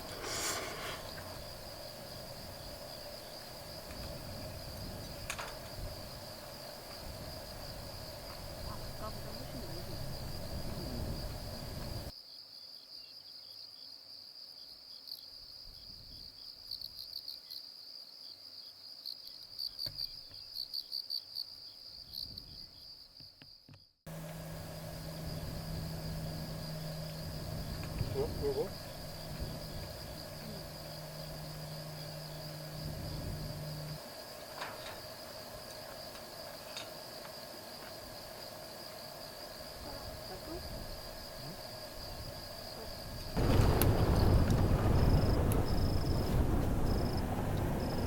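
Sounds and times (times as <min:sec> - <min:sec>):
crickets trilling: 0:00.0 - 0:48.0
low wind rumble: 0:01.0 - 0:12.1, 0:24.1 - 0:34.0, 0:40.1 - 0:48.0.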